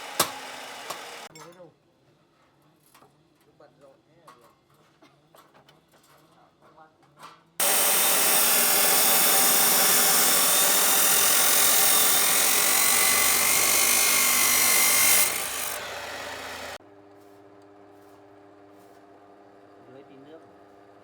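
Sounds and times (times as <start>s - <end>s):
power tool running: 0.0s - 1.3s, 7.6s - 16.8s.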